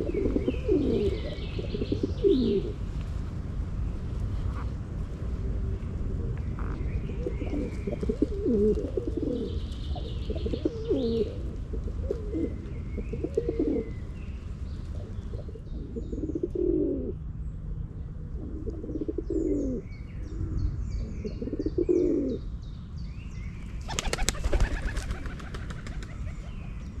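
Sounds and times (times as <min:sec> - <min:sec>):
pigeons cooing: 0:00.0 - 0:02.8, 0:06.0 - 0:14.0, 0:14.8 - 0:17.2, 0:18.3 - 0:22.4, 0:23.9 - 0:26.8
small birds chirping: 0:00.0 - 0:02.8, 0:06.3 - 0:16.6, 0:18.8 - 0:27.0
low background rumble: 0:00.0 - 0:27.0.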